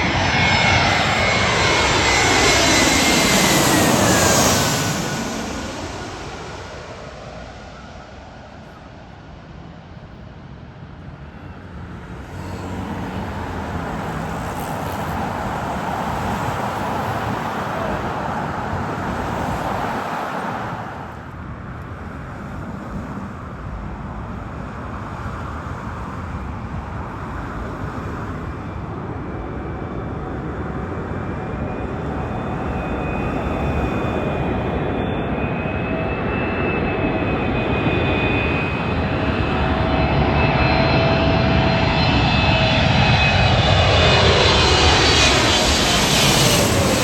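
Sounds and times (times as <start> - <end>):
jet airliner engine noise: 0.0 - 47.0
road traffic rumble: 0.0 - 47.0.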